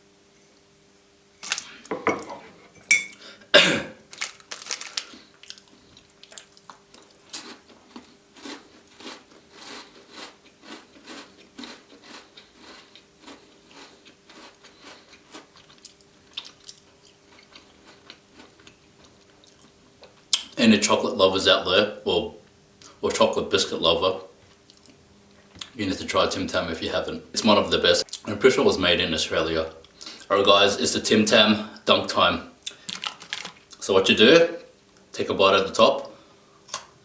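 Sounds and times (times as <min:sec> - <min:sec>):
biscuit crunching bites: 0:04.1 - 0:19.8
chewing: 0:04.7 - 0:20.4.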